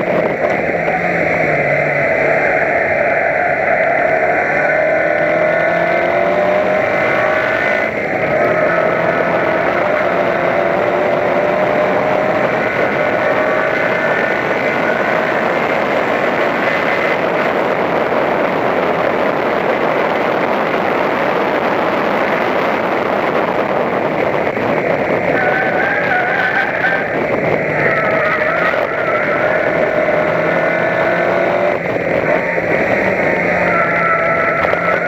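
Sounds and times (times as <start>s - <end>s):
race car engine at high revs: 0.0s - 35.0s
wind and road noise: 0.0s - 35.0s.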